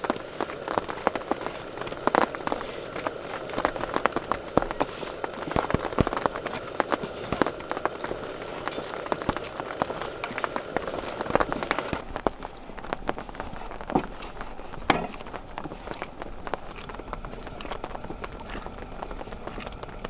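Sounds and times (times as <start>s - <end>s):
raindrop hits: 0.0s - 14.1s
rain hissing: 0.0s - 20.0s.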